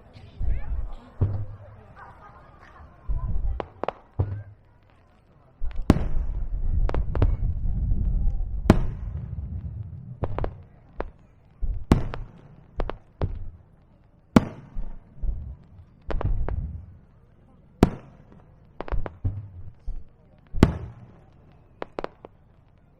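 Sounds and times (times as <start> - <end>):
low rolling rumble: 6.2 - 10.6, 15.2 - 17.0.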